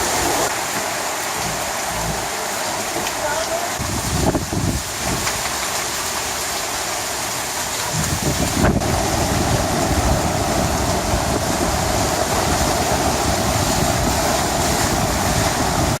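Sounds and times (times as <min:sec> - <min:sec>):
heavy rain: 0:00.0 - 0:16.0
low rumble: 0:08.0 - 0:16.0.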